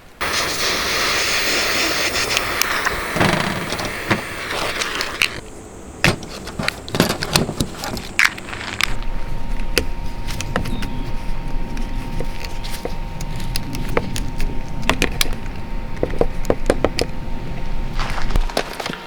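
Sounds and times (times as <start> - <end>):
low rumble: 5.1 - 18.6.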